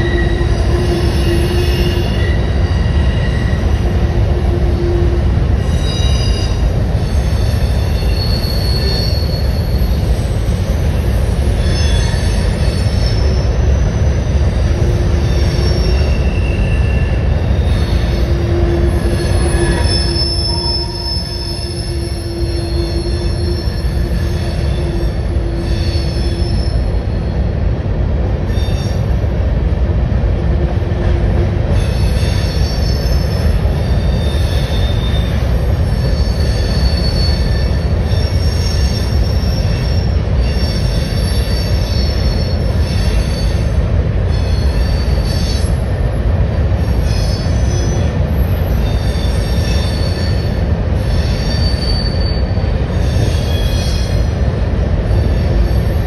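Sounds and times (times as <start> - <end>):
high-pitched wheel squeals: 0.0 - 27.4, 31.7 - 45.8, 46.9 - 54.5
train rumbling over steel bridge: 0.0 - 56.0.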